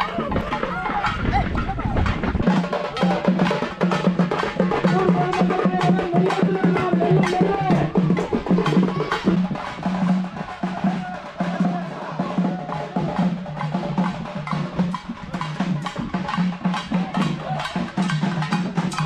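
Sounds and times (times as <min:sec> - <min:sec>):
drum ensemble playing: 0:00.0 - 0:19.0.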